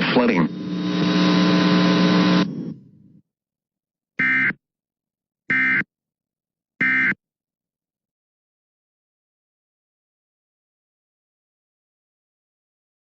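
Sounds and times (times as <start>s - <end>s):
steady buzzing tone: 0.0s - 2.8s.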